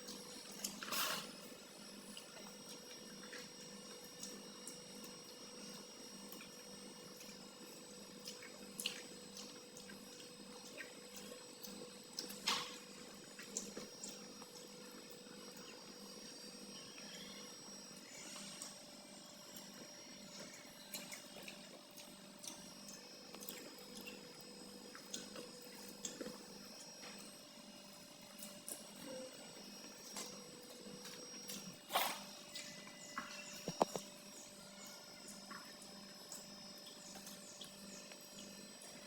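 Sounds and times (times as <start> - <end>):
chewing and lip-smacking: 0.0 - 16.0, 19.5 - 34.2.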